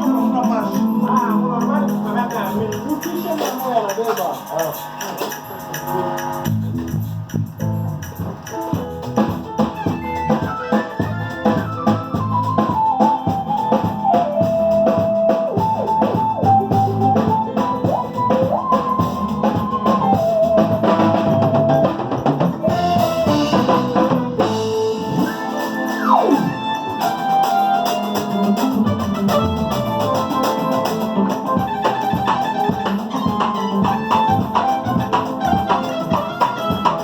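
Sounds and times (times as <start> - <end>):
melody over drum beat and bass: 0.0 - 37.0.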